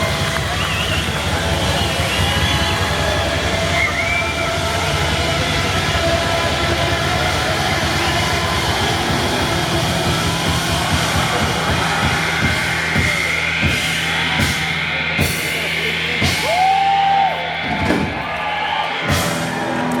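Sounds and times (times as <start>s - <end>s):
drum kit hits: 8.1s - 16.8s, 17.6s - 20.0s.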